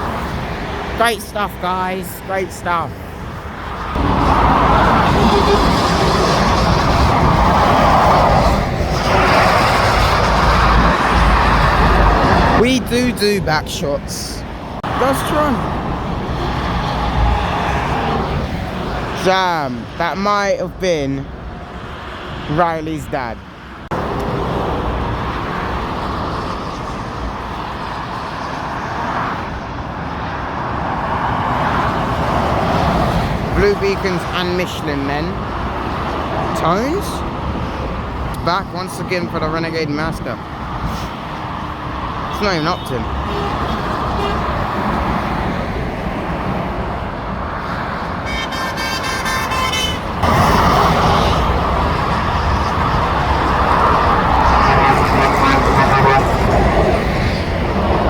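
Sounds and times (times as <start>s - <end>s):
motorway traffic passing: 0.0s - 58.0s
vehicle horn: 42.3s - 44.6s, 48.2s - 51.4s, 54.4s - 56.6s.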